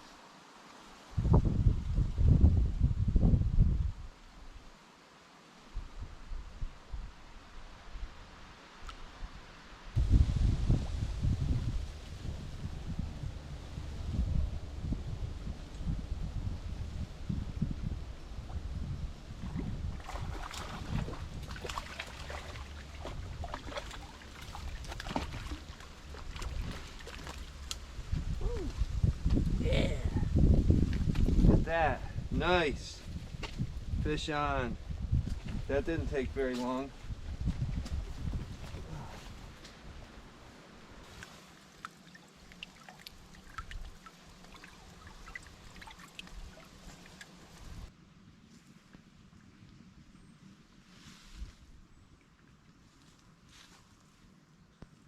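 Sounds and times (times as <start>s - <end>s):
wind rumble on microphone: 1.1s - 4.7s, 5.7s - 41.1s, 44.9s - 48.0s
water lapping around canoe: 19.3s - 27.8s, 41.0s - 47.9s
water drips: 19.4s - 27.9s, 41.1s - 47.9s.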